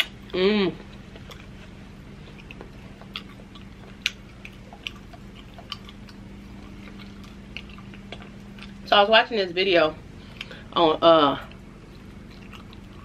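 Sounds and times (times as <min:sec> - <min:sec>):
steady low hum: 0:00.0 - 0:13.0
wet chewing mouth clicks: 0:00.8 - 0:08.8, 0:11.5 - 0:13.0.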